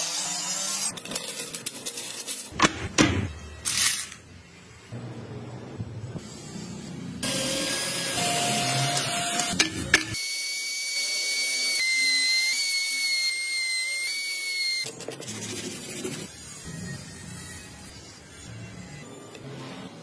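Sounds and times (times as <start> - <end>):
rotary carving tool whining: 7.2 - 14.9, 16.2 - 20.0.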